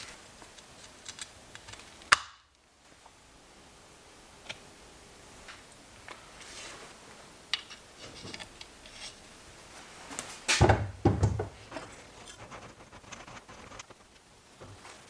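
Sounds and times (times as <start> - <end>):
metal tools clicking and tapping: 7.5 - 9.2.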